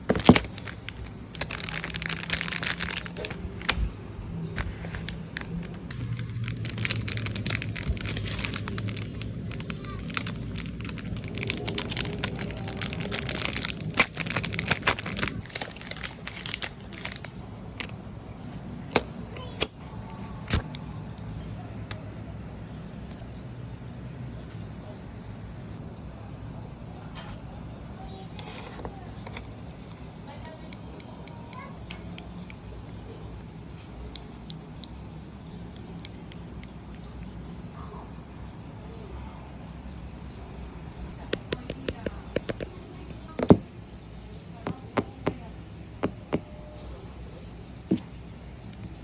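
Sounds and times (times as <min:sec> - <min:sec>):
packaging crinkling and tearing: 0:00.0 - 0:04.0, 0:04.6 - 0:18.0
low steady hum: 0:00.0 - 0:49.0.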